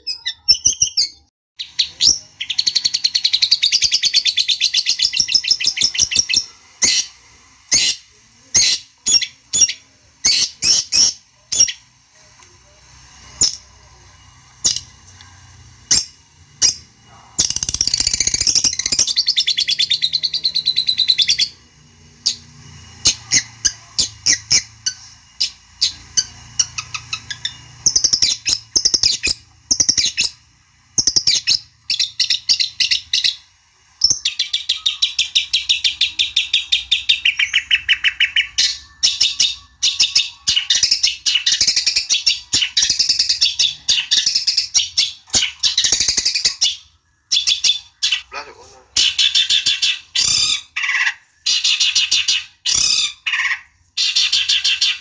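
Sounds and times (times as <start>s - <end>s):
bird chattering song: 0.0s - 11.9s, 15.9s - 21.6s, 22.2s - 30.4s, 31.0s - 55.0s
sharp bird chips: 15.9s - 21.6s.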